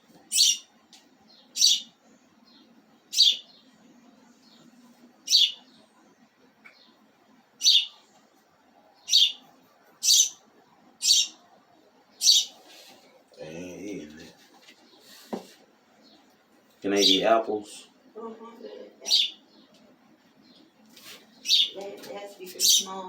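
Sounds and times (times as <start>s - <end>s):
bird chirping: 0.2s - 6.0s, 6.6s - 8.2s, 8.9s - 11.5s, 12.1s - 12.8s, 16.9s - 17.9s, 18.5s - 21.8s, 22.4s - 23.0s.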